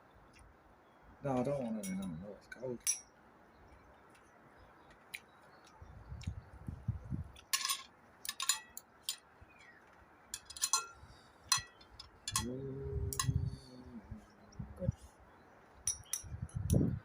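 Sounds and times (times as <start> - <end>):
person humming: 12.3 - 15.0
metallic clinking and chiming: 15.9 - 16.4.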